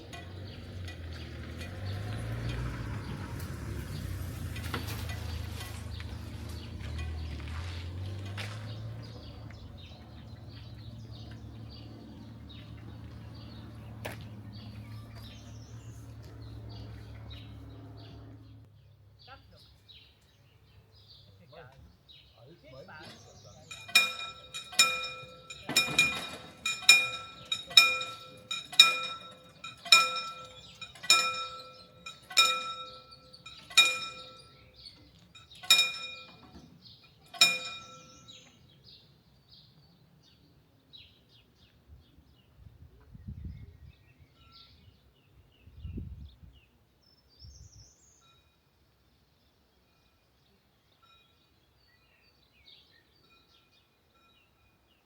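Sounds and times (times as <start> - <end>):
level-crossing warning bell: 23.6 - 38.6, 51.0 - 51.6, 53.2 - 55.0.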